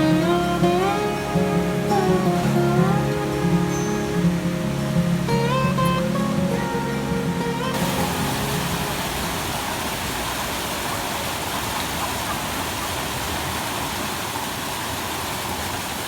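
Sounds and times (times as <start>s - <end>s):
guitar music: 0.0s - 9.7s
waterfall rushing: 0.0s - 16.0s.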